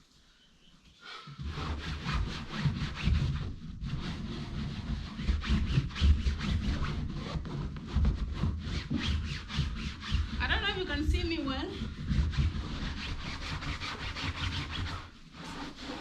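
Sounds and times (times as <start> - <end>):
damp cloth rubbing over chair: 1.4 - 16.0.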